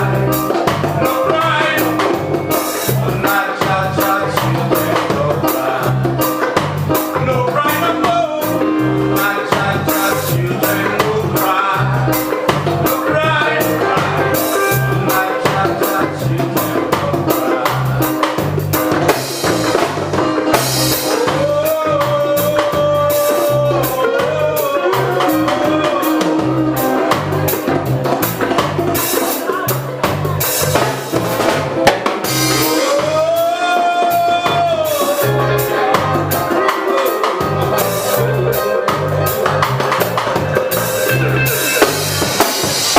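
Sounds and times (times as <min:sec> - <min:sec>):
reggae band playing live: 0:00.0 - 0:42.9.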